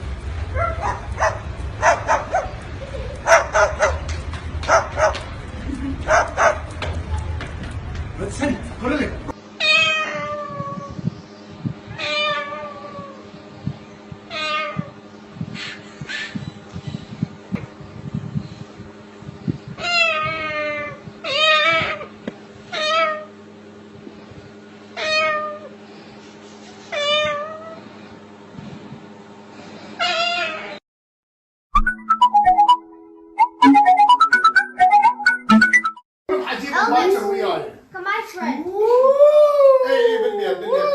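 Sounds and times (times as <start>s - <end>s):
steady low hum: 0.0s - 30.5s
cat meowing: 9.6s - 11.0s, 11.9s - 13.2s, 14.3s - 14.9s, 19.8s - 22.1s, 22.7s - 23.3s, 25.0s - 25.7s, 26.9s - 27.8s.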